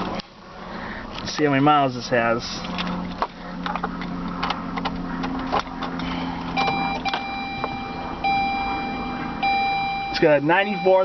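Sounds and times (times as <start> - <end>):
low hum: 2.6 - 11.0
dashboard warning chime: 6.5 - 11.0.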